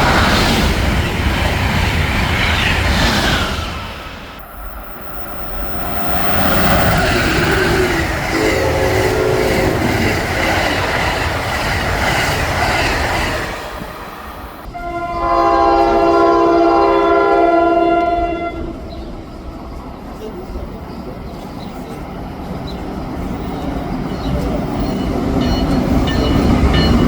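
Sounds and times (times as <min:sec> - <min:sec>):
train rail noise: 0:00.0 - 0:27.0
train horn chord: 0:07.6 - 0:10.2, 0:14.7 - 0:18.8.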